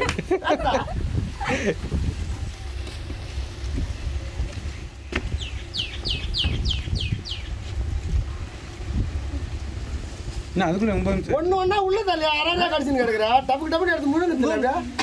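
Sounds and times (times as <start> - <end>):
low steady rumble: 0.0 - 15.0
bird calling falling notes: 5.3 - 7.6.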